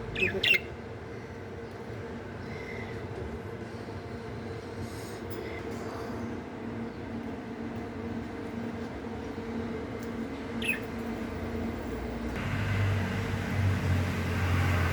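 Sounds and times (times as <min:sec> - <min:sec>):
budgerigar chirp: 0:00.2 - 0:00.7.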